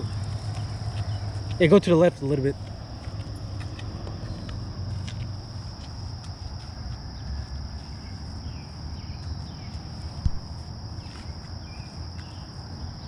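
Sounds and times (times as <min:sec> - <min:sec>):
insects chirring: 0:00.0 - 0:13.0
sharp thump: 0:10.2 - 0:10.5.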